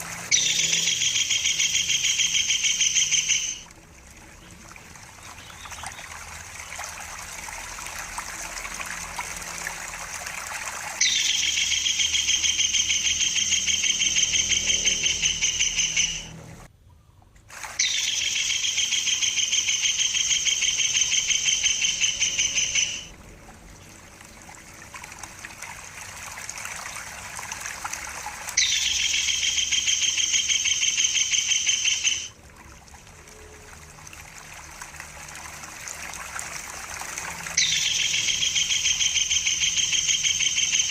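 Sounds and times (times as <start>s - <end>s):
trickle of running water: 0.0s - 16.7s, 17.4s - 40.9s
kingfisher shrill trills: 0.3s - 3.7s, 11.0s - 16.3s, 17.8s - 23.1s, 28.6s - 32.4s.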